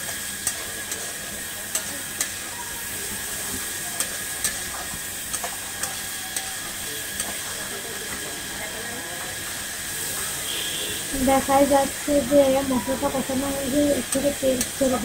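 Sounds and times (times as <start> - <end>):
spice paste sizzling in oil: 0.0 - 15.0.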